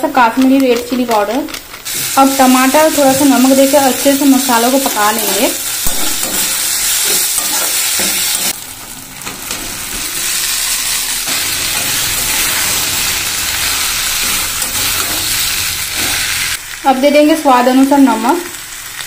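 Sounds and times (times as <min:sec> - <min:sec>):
masala sizzling in hot oil: 0:00.2 - 0:19.0
metal spatula scraping pan: 0:05.8 - 0:16.6.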